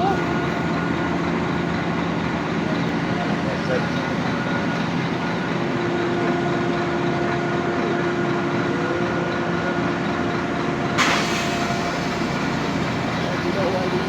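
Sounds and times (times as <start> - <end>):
road traffic engines: 0.0 - 14.0.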